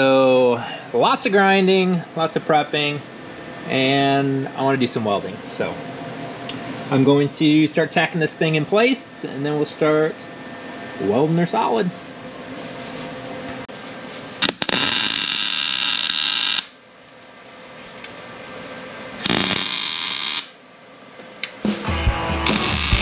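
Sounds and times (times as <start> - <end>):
arc welder crackling buzz: 14.4 - 16.8, 19.2 - 20.6, 21.4 - 23.0
background music: 21.7 - 23.0.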